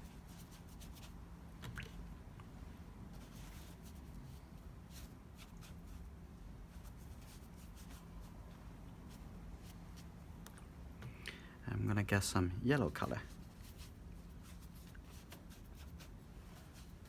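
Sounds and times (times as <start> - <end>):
low steady hum: 0.0 - 17.0
paintbrush scratching and tapping: 13.0 - 17.0.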